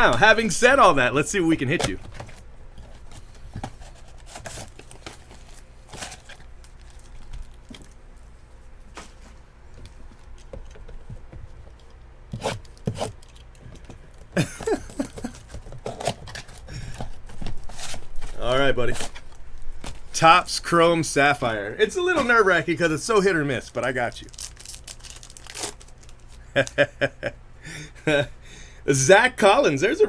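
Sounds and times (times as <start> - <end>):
wrappers tearing and crinkling: 1.4 - 8.0, 23.1 - 26.9.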